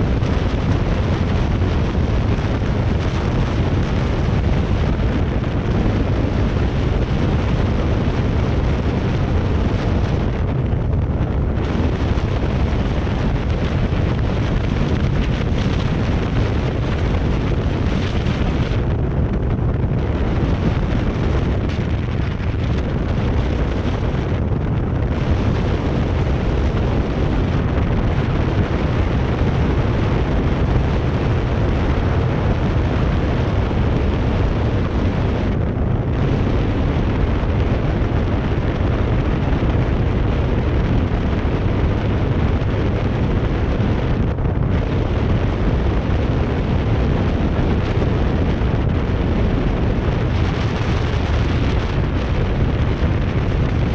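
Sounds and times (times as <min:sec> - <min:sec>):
wind buffeting microphone: 0:00.0 - 0:53.9.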